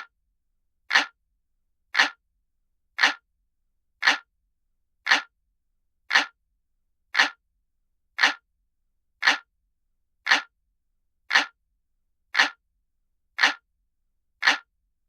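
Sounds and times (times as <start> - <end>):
analog clock ticking: 0.9 - 1.2, 2.0 - 2.2, 3.0 - 3.2, 4.0 - 4.3, 5.1 - 5.3, 6.1 - 6.4, 7.2 - 7.4, 8.2 - 8.4, 9.2 - 9.5, 10.2 - 10.5, 11.3 - 11.6, 12.3 - 12.6, 13.4 - 13.6, 14.4 - 14.7.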